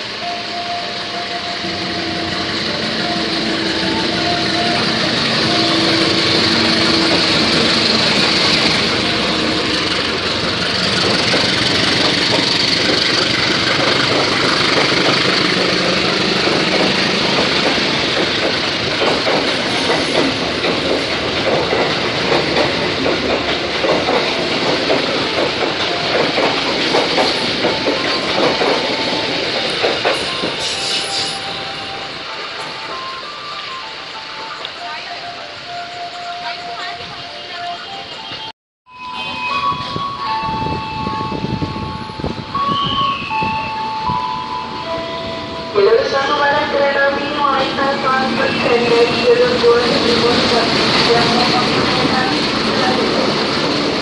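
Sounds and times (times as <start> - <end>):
diesel locomotive engine running: 0.0 - 30.8, 40.2 - 54.0
train wheels clattering over rail joints: 3.0 - 31.2.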